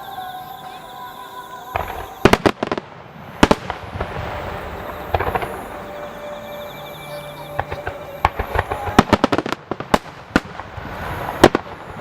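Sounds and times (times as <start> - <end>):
firework crackling: 1.7 - 12.0
firework bangs: 1.8 - 6.6, 7.5 - 12.0.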